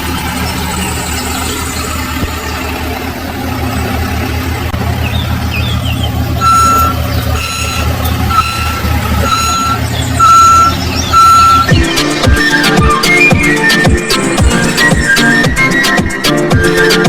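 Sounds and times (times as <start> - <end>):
low engine rumble: 0.0 - 15.9
reversing alarm beeping: 6.4 - 11.9.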